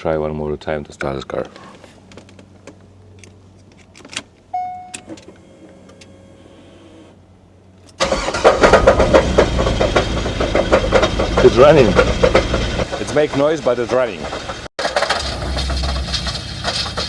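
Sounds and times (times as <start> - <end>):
short electronic beep: 4.6 - 5.1
car engine running rough: 8.0 - 17.0.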